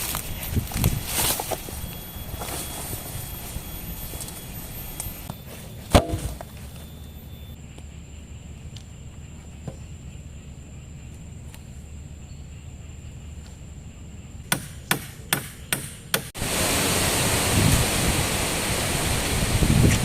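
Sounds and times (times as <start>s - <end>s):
wind: 0.0s - 20.0s
heavy rain: 16.4s - 20.0s.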